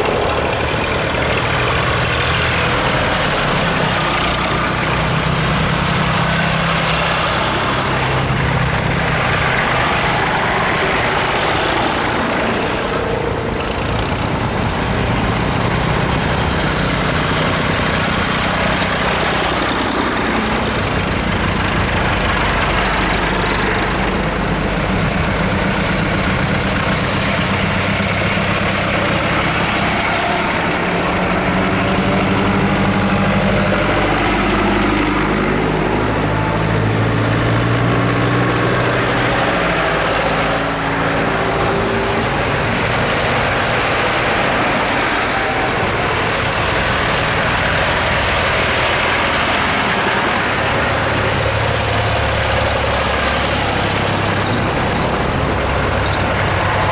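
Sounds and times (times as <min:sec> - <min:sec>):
tractor engine running: 0:00.0 - 0:56.9.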